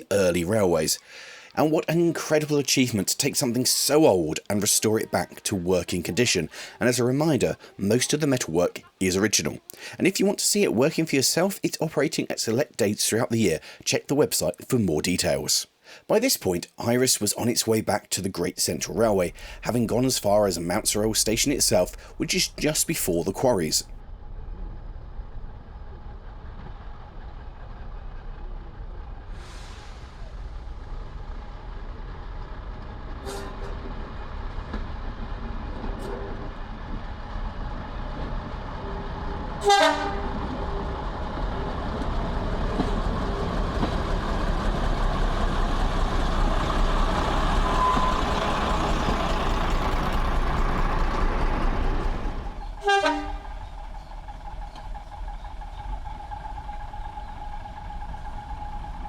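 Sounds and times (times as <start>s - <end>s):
train rumbling: 18.7s - 59.0s.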